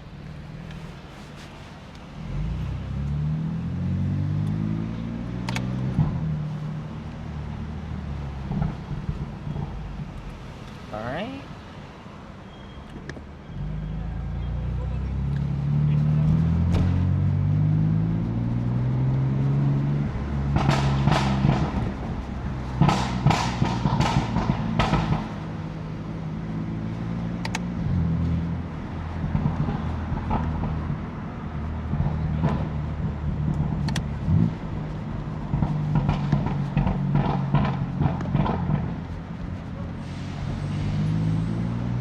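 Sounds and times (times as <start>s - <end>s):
car engine at low revs: 0.0s - 11.5s, 13.7s - 40.0s
exhaust pops and crackles: 5.2s - 10.8s, 18.2s - 25.7s, 26.9s - 40.0s.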